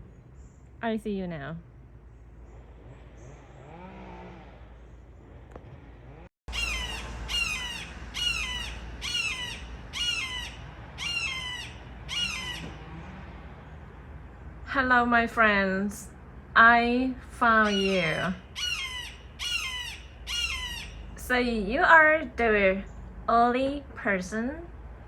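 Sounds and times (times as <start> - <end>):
harsh bird calls: 6.5 - 14.6, 17.5 - 21.2.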